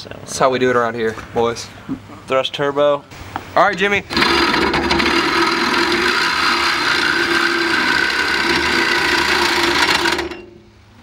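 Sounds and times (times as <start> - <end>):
reciprocating saw cutting metal pipe: 4.1 - 10.6.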